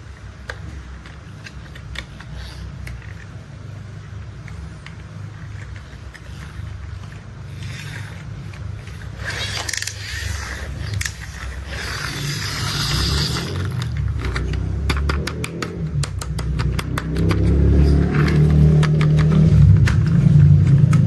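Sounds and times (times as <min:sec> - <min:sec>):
sharp clicks: 0:13.6 - 0:17.6.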